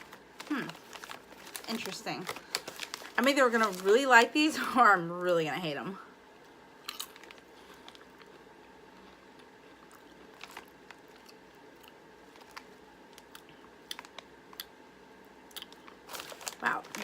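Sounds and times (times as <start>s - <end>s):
chewing crunchy chips: 6.8s - 14.8s, 15.4s - 17.0s.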